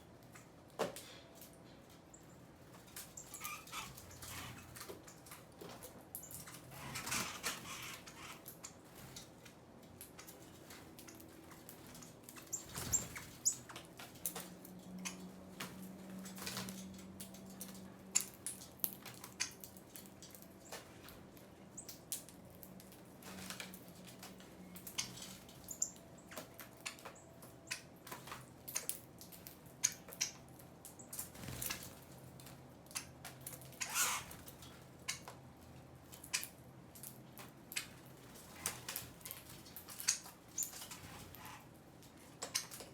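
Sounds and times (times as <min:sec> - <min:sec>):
birds pecking and hopping: 0:00.0 - 0:42.9
birds wings fluttering: 0:10.2 - 0:14.6, 0:31.2 - 0:32.6.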